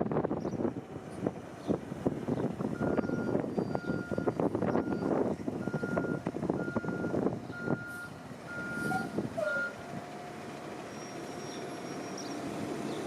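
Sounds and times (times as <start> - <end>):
truck engine running: 0.0 - 13.0
truck backup alarm beeping: 2.7 - 9.9, 10.5 - 12.4.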